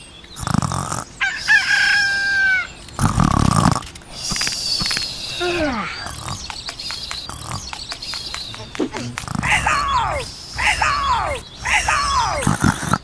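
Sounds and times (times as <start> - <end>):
rooster crowing: 1.2 - 2.8
short falling animal cry: 8.9 - 12.6.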